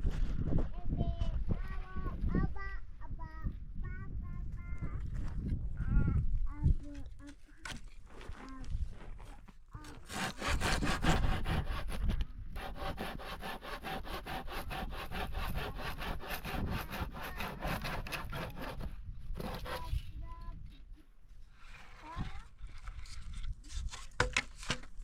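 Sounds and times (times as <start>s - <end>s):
handsaw cutting wood: 9.8s - 20.0s.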